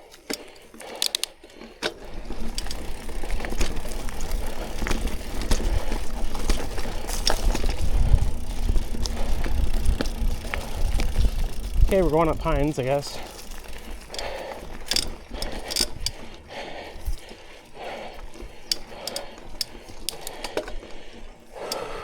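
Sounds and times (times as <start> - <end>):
bike tyres rolling on dirt: 0.0 - 22.0
rattling ticks: 0.0 - 22.0
wind rumble on microphone: 6.9 - 13.3
sharp clicks: 21.6 - 22.0.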